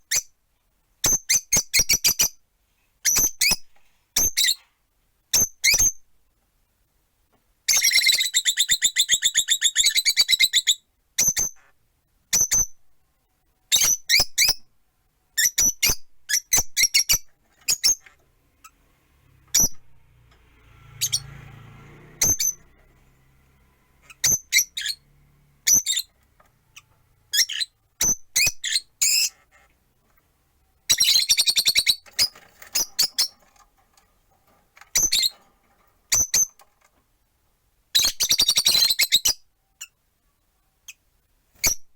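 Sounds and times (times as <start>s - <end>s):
lovebirds shrill chirping: 22.2s - 22.7s, 24.0s - 25.0s, 25.6s - 26.2s, 26.8s - 29.3s, 30.9s - 33.6s, 34.9s - 35.3s, 36.1s - 36.6s, 38.0s - 39.9s.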